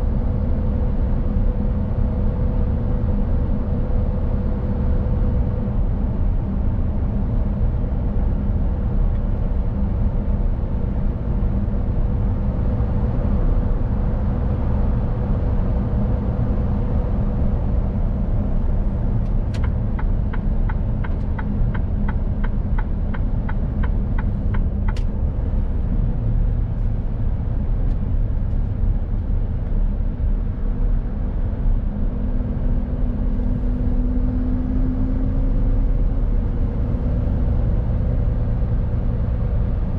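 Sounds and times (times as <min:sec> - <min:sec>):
road rumble: 0:00.0 - 0:39.9
truck diesel engine: 0:07.6 - 0:39.9
turn signal ticking: 0:19.2 - 0:25.2.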